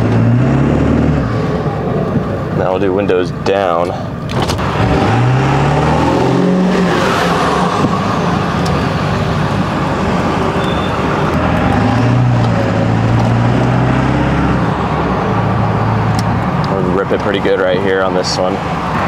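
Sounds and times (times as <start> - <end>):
diesel truck engine accelerating: 0.0 - 19.0
road noise: 0.0 - 19.0
wind noise: 6.0 - 13.6.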